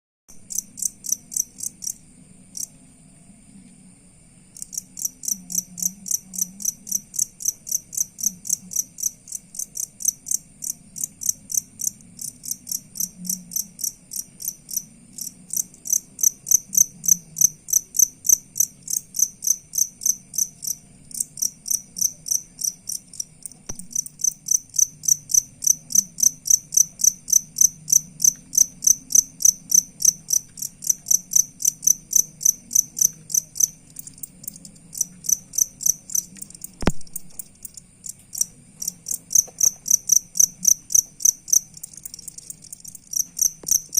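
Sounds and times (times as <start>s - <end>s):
cricket chirping: 0.3s - 43.9s.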